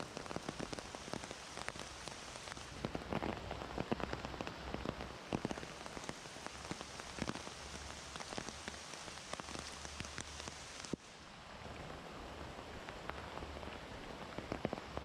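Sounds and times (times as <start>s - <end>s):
heavy rain through foliage: 0.0s - 15.0s.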